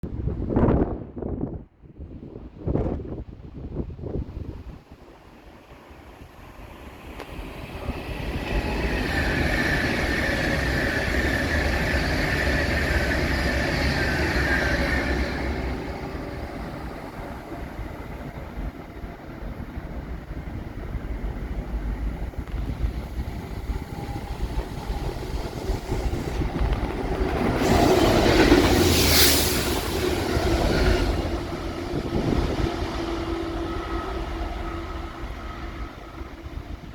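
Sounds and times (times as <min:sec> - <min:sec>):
train wheels rolling on rails: 0:04.8 - 0:36.9.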